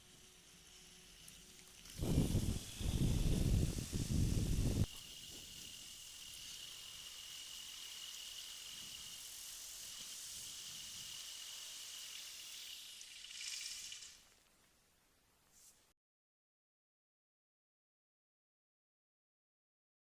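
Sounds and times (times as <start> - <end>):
high-pitched hiss: 0.0 - 14.4
thin high whine: 0.0 - 14.4.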